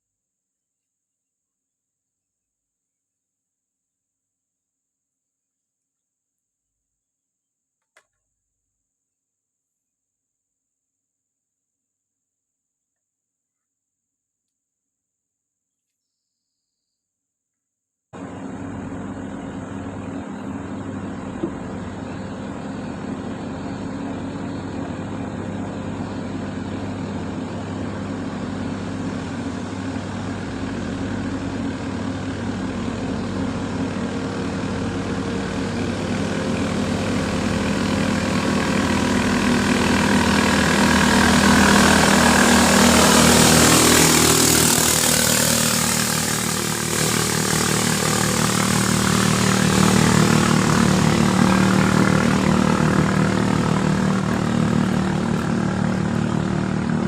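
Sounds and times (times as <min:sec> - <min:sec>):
motor engine running: 0:18.2 - 0:57.0.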